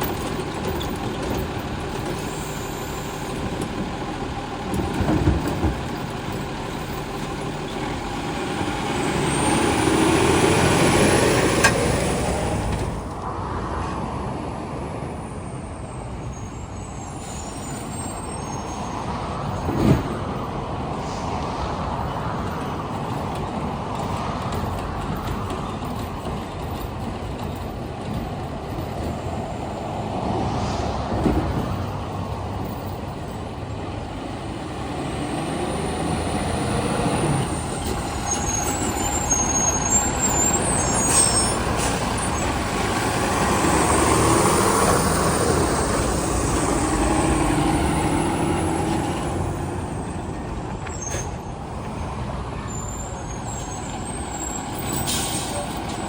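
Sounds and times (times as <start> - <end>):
garbage truck running: 0.0 - 13.2, 31.1 - 56.0.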